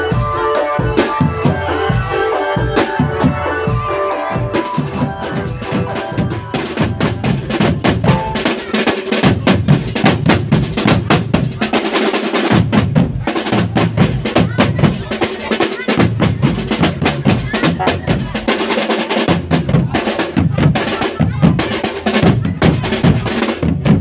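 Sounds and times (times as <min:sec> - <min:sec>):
pitched melody line: 0:00.0 - 0:10.1
pounding bass drums: 0:00.0 - 0:24.0
rapid snare drum strokes: 0:02.7 - 0:24.0.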